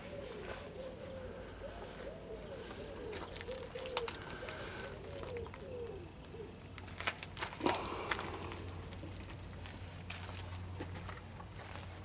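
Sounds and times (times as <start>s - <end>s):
pigeon cooing: 0.0s - 6.7s, 7.6s - 8.8s
steady low hum: 0.0s - 12.0s.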